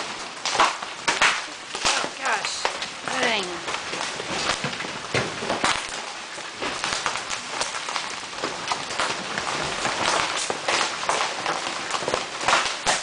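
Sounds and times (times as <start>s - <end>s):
hailstones striking hard surfaces: 0.0s - 13.0s
heavy rain: 0.0s - 13.0s.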